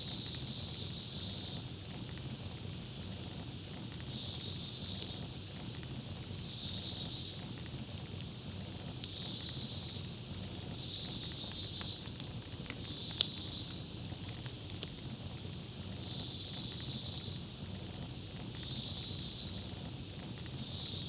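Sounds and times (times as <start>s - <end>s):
campfire crackling and popping: 0.1s - 21.0s.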